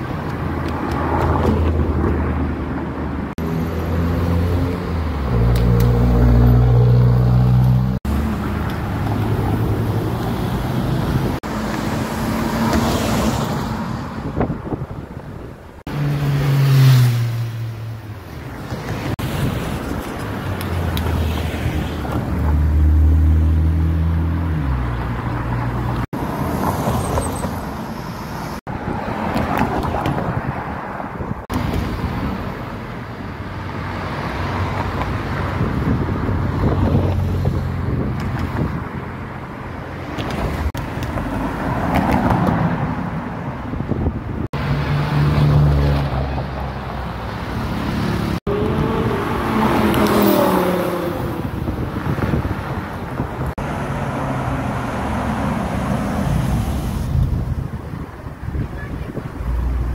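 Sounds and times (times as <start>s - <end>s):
road noise: 0.0s - 59.9s
sports car engines revving: 44.6s - 56.4s.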